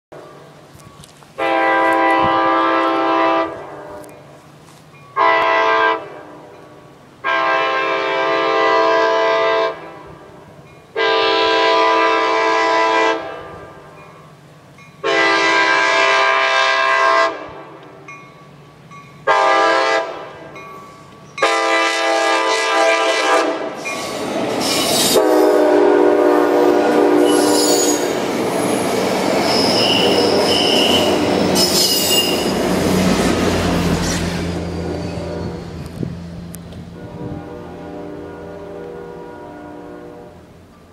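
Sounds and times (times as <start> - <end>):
train rumble and clatter: 0.2 - 40.9
train horn blasts: 1.4 - 4.2, 5.2 - 13.8, 15.0 - 17.9, 19.2 - 20.5, 21.4 - 23.8, 25.1 - 28.2, 29.5 - 32.6, 34.8 - 36.1, 36.9 - 40.6
wheel squeal: 27.2 - 32.8.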